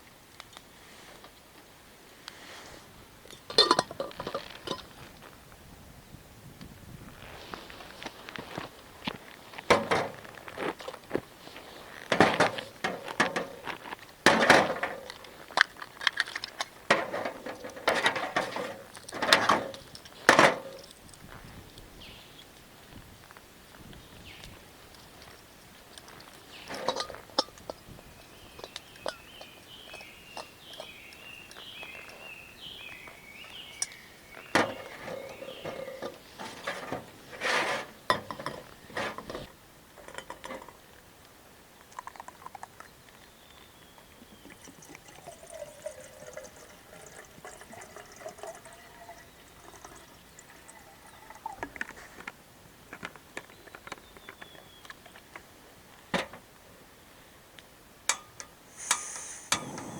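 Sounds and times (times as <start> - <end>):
pots and utensils clinking: 3.3 - 4.9, 9.7 - 10.4, 12.0 - 21.0, 26.1 - 27.8, 28.5 - 31.0, 33.8 - 40.8, 44.4 - 52.0, 58.1 - 59.9
liquid pouring: 44.4 - 52.0.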